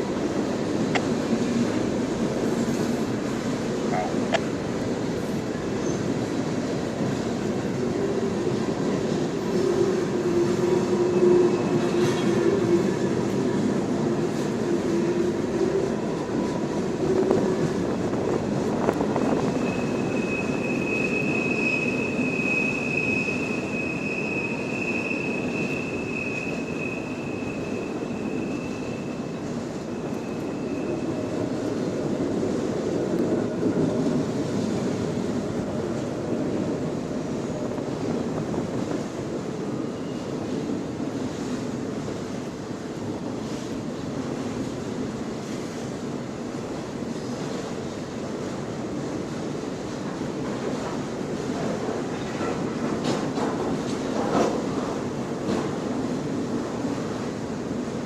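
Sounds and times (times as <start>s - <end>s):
train cars rumbling on rails: 0.0s - 58.0s
high train wheel squeal: 5.2s - 31.9s, 37.4s - 40.8s, 50.8s - 55.7s.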